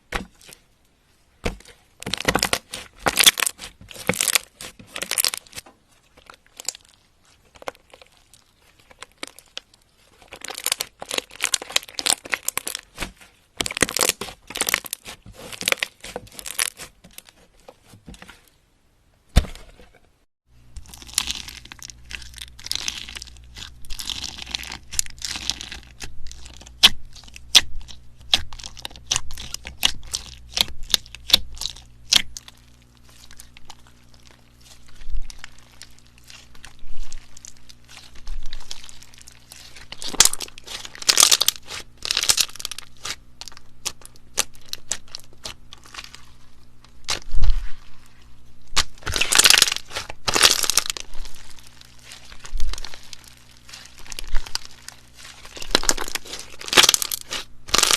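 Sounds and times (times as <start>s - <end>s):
slime squeezed with crackling pops: 10.2s - 16.9s, 20.8s - 46.2s, 48.7s - 57.9s.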